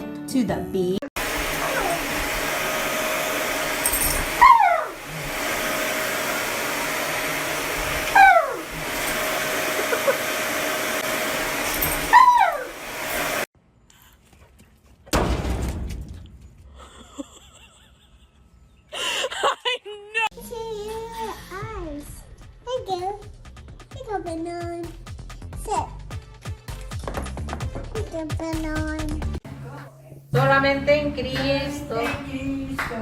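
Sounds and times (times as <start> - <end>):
blower running: 1.2 - 13.5.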